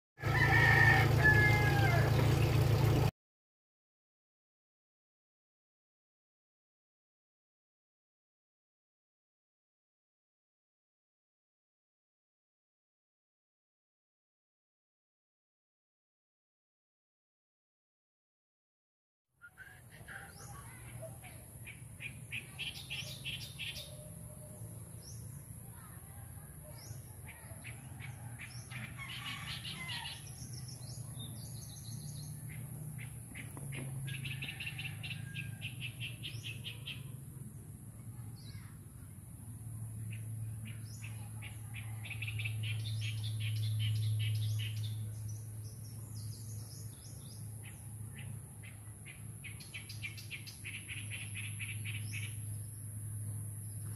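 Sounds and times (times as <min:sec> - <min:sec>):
small birds chirping: 0:19.4 - 0:37.2, 0:40.0 - 0:53.9.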